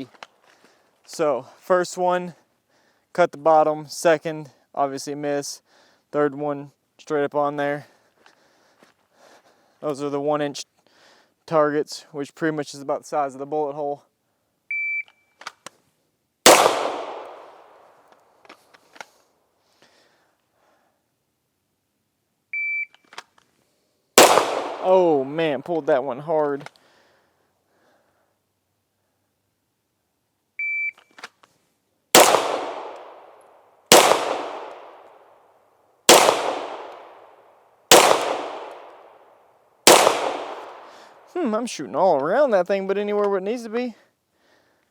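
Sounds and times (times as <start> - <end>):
pistol shot echoing: 16.5 - 18.0, 24.2 - 25.4, 32.2 - 35.2, 36.1 - 37.3, 37.9 - 39.2, 39.8 - 41.3.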